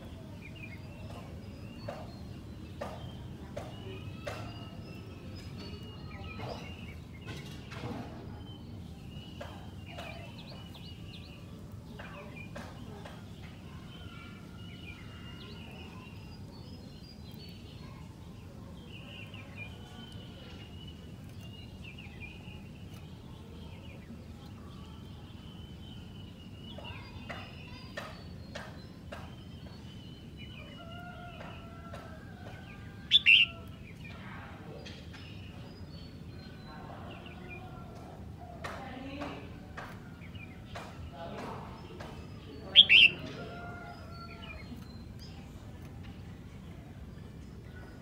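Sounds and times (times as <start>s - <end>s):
low background noise: 0.0s - 48.0s
birds singing whistled phrases: 13.4s - 34.2s, 39.2s - 45.3s.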